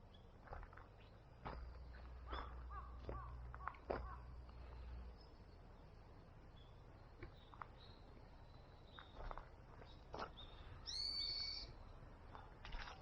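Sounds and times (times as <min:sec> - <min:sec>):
faint outdoor background: 0:00.0 - 0:13.0
bird call: 0:10.8 - 0:11.8.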